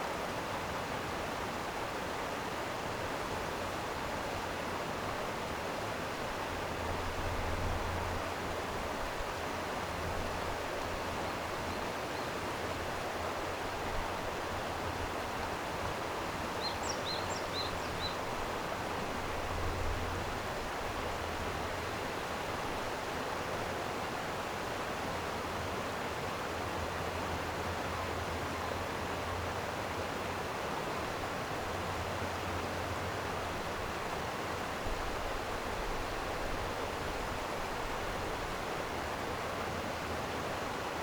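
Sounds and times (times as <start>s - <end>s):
stream water rushing: 0.0s - 41.0s
bird chirping: 16.6s - 18.2s.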